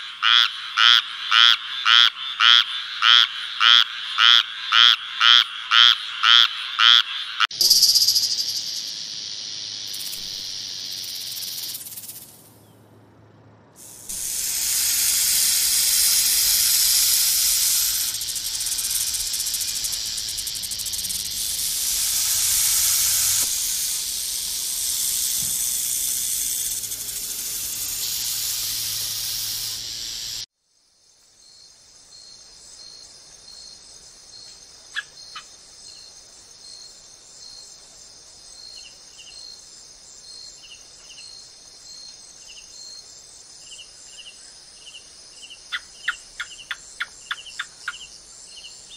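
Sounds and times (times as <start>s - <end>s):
insects chirping: 0.0s - 12.8s, 13.8s - 48.9s
rattlesnake rattle buzzing: 7.5s - 12.6s, 13.8s - 30.5s.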